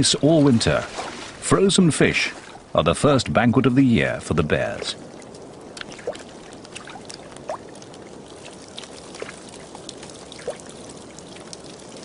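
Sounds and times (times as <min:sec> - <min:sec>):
water trickling and gurgling: 0:00.0 - 0:12.0
water drips and plops: 0:04.6 - 0:12.0.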